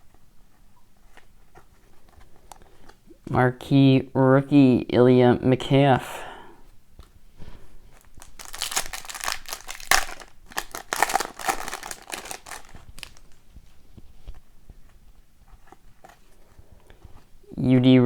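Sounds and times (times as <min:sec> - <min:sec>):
wrapper crinkling and tearing: 0:08.0 - 0:13.4.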